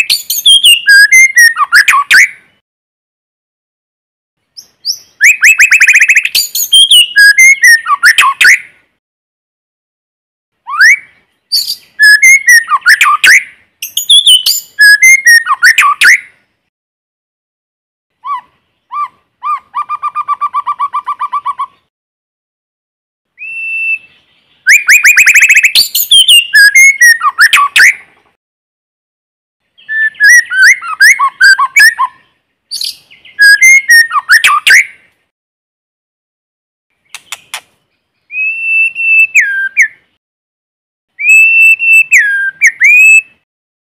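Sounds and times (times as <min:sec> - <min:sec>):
bird singing whistled phrases: 0:00.0 - 0:02.4, 0:04.6 - 0:08.7, 0:10.7 - 0:16.3, 0:23.4 - 0:28.0, 0:29.8 - 0:34.9, 0:38.2 - 0:40.0, 0:41.2 - 0:43.4.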